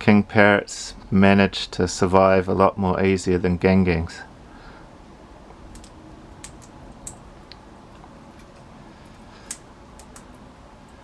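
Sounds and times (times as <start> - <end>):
low background hum: 0.0 - 11.0
parrot cracking seeds clicks: 8.4 - 10.4.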